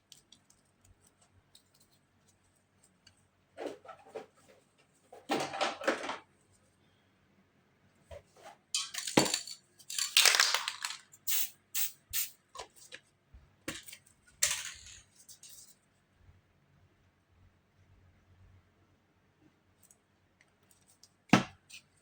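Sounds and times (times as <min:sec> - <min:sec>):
spray paint can hissing: 0:10.8 - 0:12.4.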